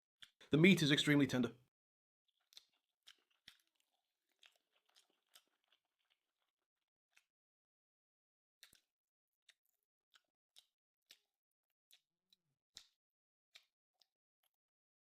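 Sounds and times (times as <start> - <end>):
soft chewing mouth clicks: 0.1 - 0.5, 2.3 - 7.4, 8.6 - 14.9.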